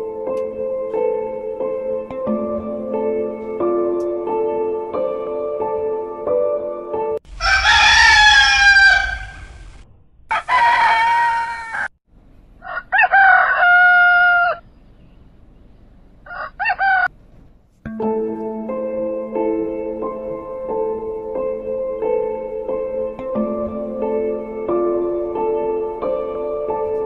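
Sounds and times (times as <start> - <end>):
soft background music: 0.0 - 7.2, 17.9 - 27.0
rooster crowing: 7.3 - 11.9, 12.6 - 14.6, 16.2 - 17.1.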